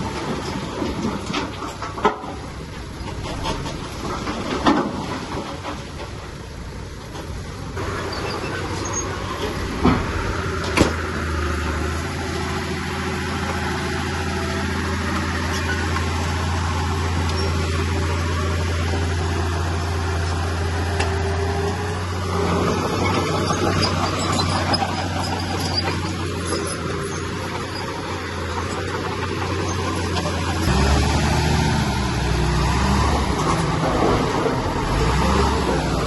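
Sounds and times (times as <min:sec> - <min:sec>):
heavy machinery diesel engine: 0:00.0 - 0:36.0.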